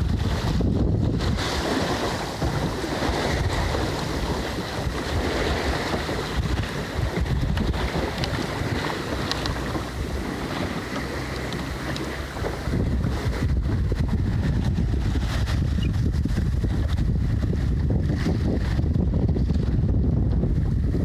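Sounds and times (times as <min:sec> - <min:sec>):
water splashing along hull: 0:00.0 - 0:21.0
wind buffeting microphone: 0:00.0 - 0:21.0.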